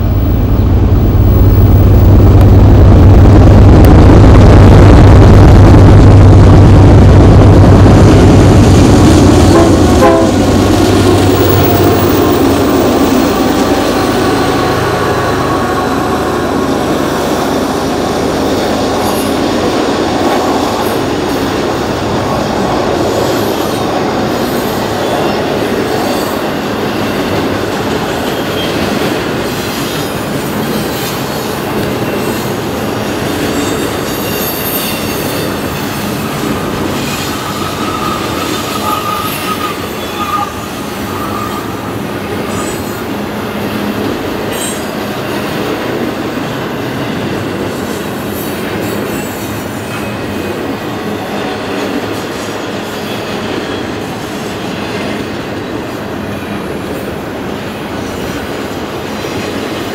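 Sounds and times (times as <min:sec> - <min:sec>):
diesel locomotive hum: 0:00.0 - 0:28.1, 0:31.2 - 0:48.8
train wheels rumbling on rails: 0:00.0 - 0:59.9
high wheel squeal: 0:36.4 - 0:43.0.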